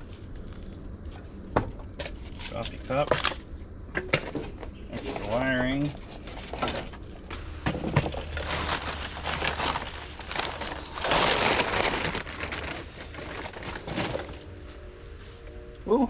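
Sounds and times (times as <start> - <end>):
junk crinkling and crushing: 0.0 - 15.7
rustling: 4.9 - 15.7.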